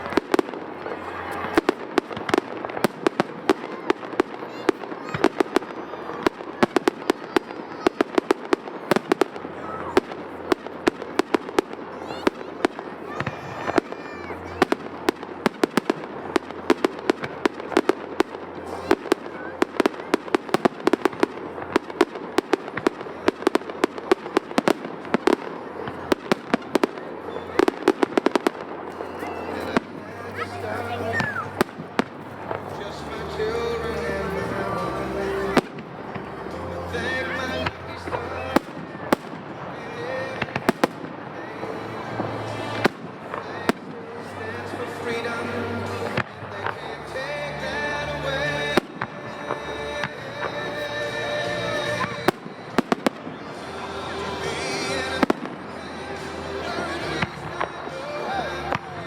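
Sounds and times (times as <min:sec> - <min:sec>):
fireworks bangs: 0:00.0 - 0:59.0
firework whistle: 0:26.3 - 0:33.2.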